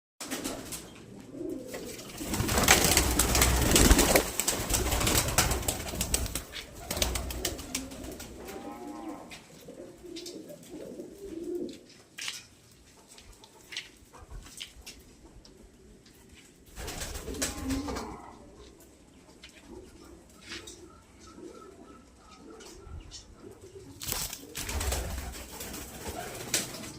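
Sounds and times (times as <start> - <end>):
pigeons cooing: 0.4 - 12.0, 16.8 - 26.9.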